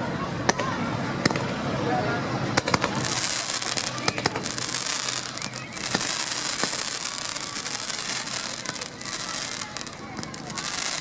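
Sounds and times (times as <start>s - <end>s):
fireworks crackling: 2.4s - 11.0s
fireworks bangs: 2.5s - 11.0s.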